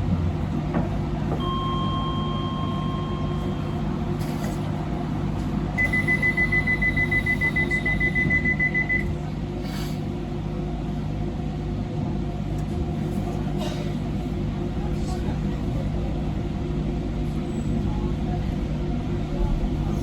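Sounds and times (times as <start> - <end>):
train equipment humming: 0.0 - 20.0
rapid warning beeps: 5.8 - 9.1.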